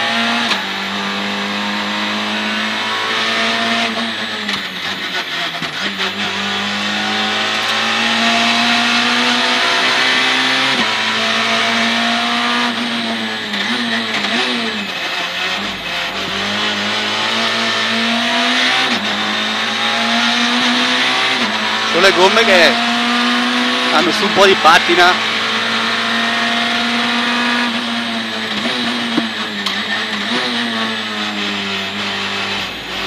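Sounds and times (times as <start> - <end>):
rally car engine revving: 0.0 - 33.0.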